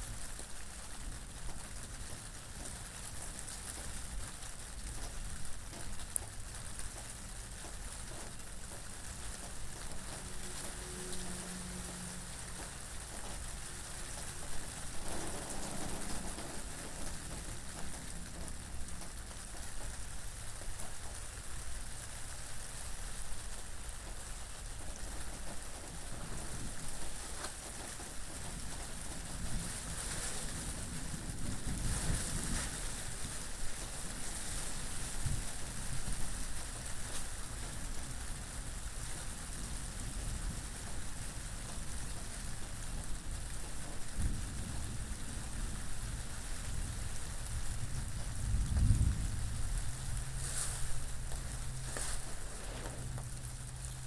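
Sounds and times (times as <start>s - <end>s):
rain falling on a surface: 0.0s - 54.0s
low wind rumble: 24.7s - 54.0s.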